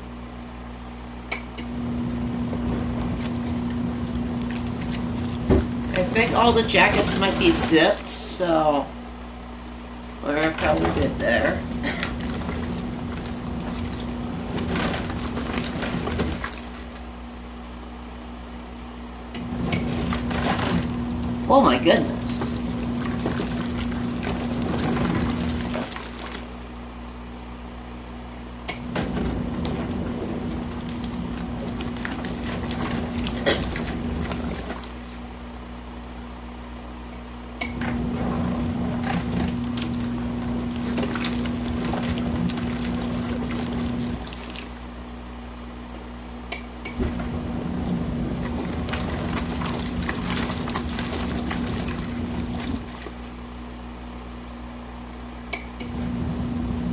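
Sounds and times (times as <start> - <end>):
washing machine motor: 0.0 - 56.9
water sloshing: 2.4 - 8.4, 10.0 - 17.2, 19.4 - 26.6, 28.8 - 35.4, 37.8 - 45.1, 47.0 - 53.5
clicks and knocks against tub: 4.4 - 7.7, 10.3 - 17.1, 28.7 - 35.1, 38.9 - 44.8, 48.4 - 53.2.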